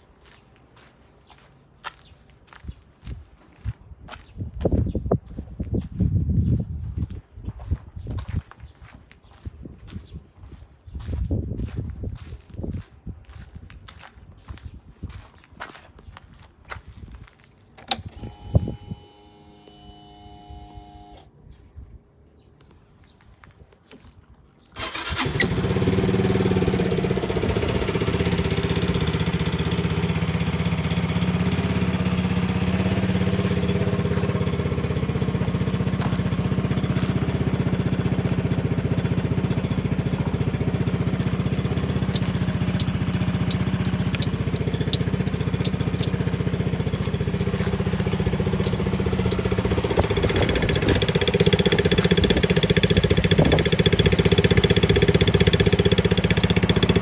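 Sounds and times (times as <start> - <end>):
scooter engine idling: 24.8 - 57.0
light clicks: 42.1 - 46.2.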